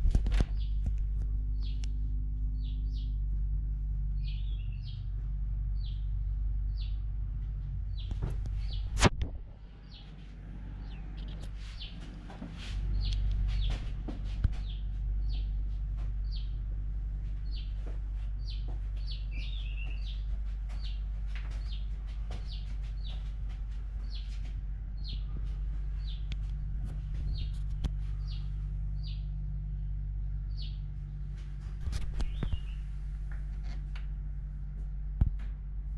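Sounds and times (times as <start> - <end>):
steady low hum: 0.0 - 35.9
bird chirping: 0.5 - 0.8, 1.5 - 3.2, 4.1 - 7.1, 7.7 - 9.0, 9.7 - 16.7, 17.3 - 23.4, 24.0 - 29.4, 30.4 - 30.9, 31.9 - 33.0.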